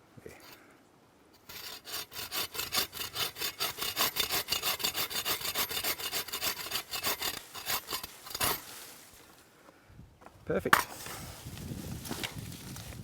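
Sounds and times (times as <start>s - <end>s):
hand saw cutting wood: 1.4s - 8.9s.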